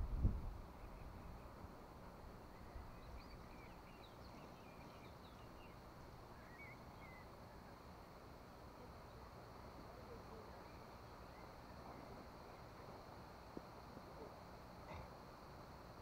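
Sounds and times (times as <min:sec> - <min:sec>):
faint bird chirps: 0:02.4 - 0:08.0.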